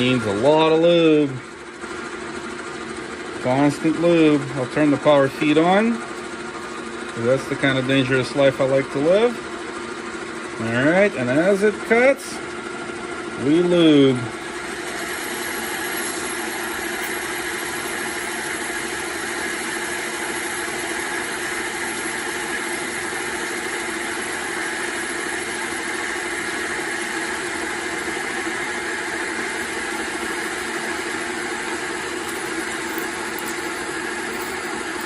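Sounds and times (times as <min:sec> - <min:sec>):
high whine of cutting: 0:13.4 - 0:35.0
metal lathe humming: 0:14.1 - 0:35.0.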